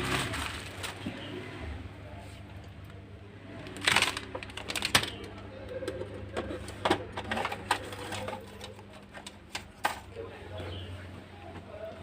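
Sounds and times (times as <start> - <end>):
packaging rustling: 0.0 - 1.3, 3.6 - 5.4.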